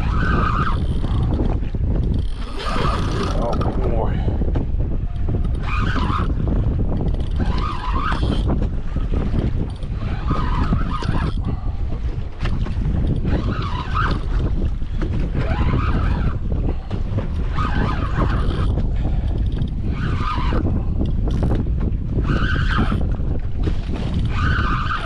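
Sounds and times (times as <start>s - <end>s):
rasping noise: 0.0s - 4.3s, 7.1s - 8.6s, 9.3s - 11.8s, 17.5s - 21.6s
wind buffeting microphone: 0.0s - 25.0s.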